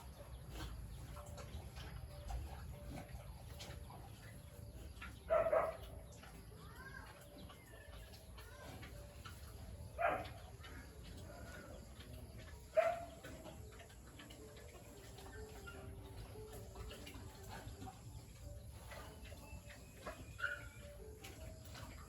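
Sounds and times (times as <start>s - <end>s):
faint bird chirps: 17.4s - 22.0s.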